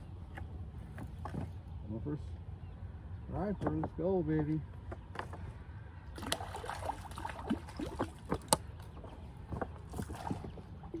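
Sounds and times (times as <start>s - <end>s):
water splashing: 6.2s - 11.0s.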